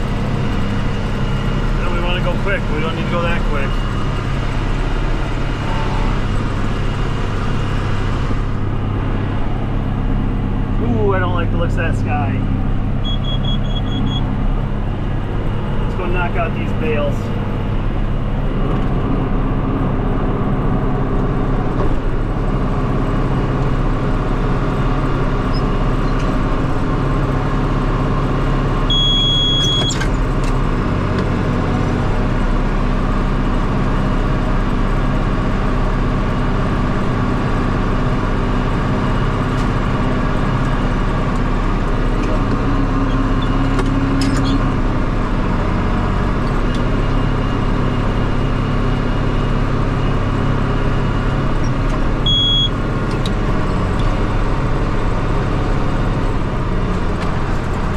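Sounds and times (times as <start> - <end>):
tractor engine running: 0.0 - 57.9
short high electronic beep: 13.0 - 14.2.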